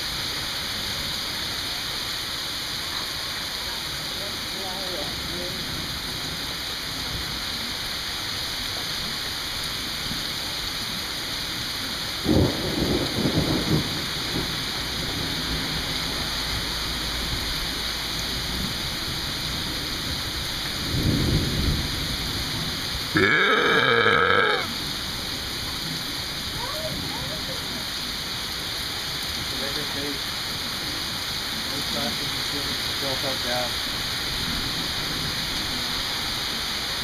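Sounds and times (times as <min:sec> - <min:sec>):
steady rain: 0:00.0 - 0:37.0
loud vocal sound: 0:23.2 - 0:24.7.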